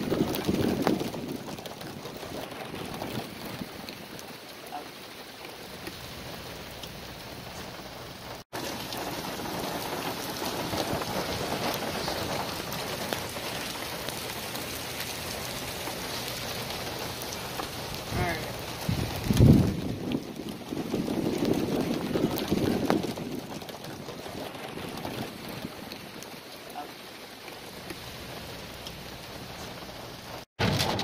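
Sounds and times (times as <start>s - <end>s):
heavy rain on pavement: 0.0s - 31.0s.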